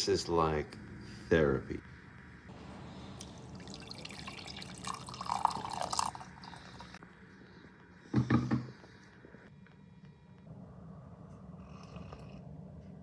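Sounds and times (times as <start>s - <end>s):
water pouring over coffee grounds: 2.6s - 7.0s.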